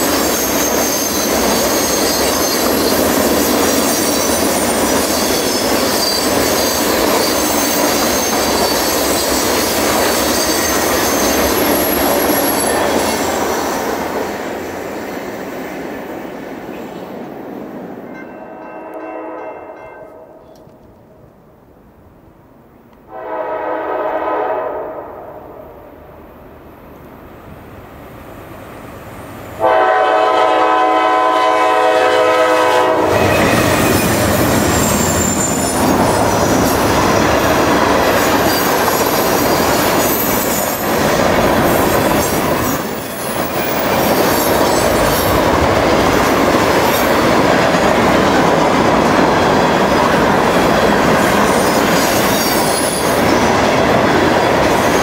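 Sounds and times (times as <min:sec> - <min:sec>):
train wheels rumbling on rails: 0:00.0 - 0:19.8, 0:28.0 - 0:55.0
locomotive air horn blasts: 0:18.4 - 0:20.4, 0:23.1 - 0:25.6, 0:29.6 - 0:34.0.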